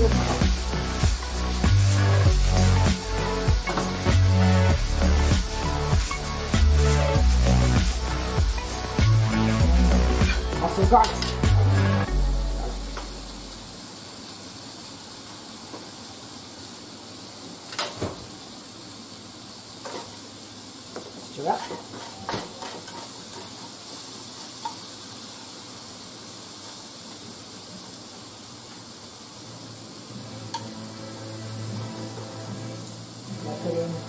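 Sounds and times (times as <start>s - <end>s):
food sizzling in oil: 0.0s - 34.0s
chopsticks scraping a pan: 19.8s - 20.2s, 21.4s - 23.8s.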